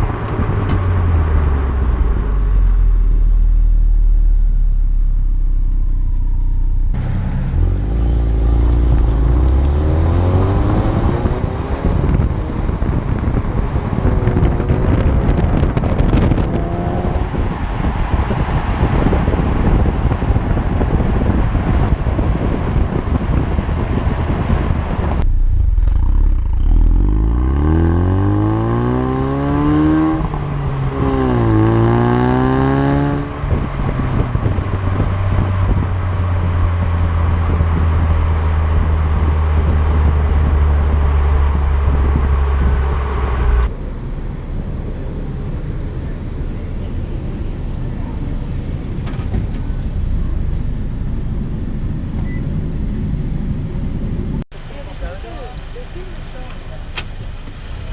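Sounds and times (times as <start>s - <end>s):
car engine accelerating: 0.0s - 54.4s
wind and road noise: 0.0s - 57.9s.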